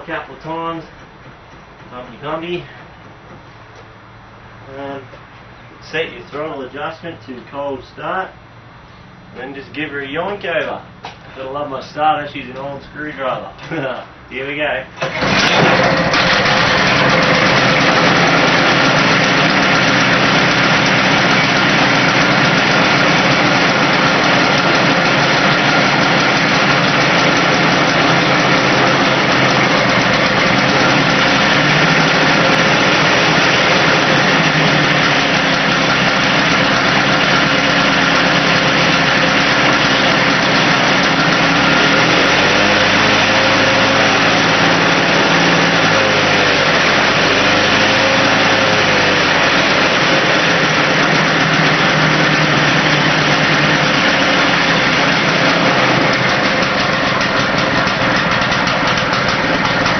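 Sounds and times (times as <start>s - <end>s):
lawn mower engine running: 14.9s - 59.9s.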